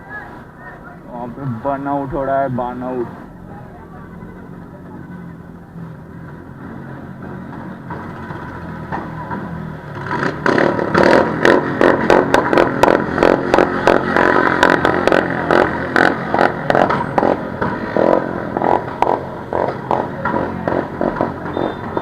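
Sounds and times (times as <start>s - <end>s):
motorcycle engine revving: 4.9s - 22.0s.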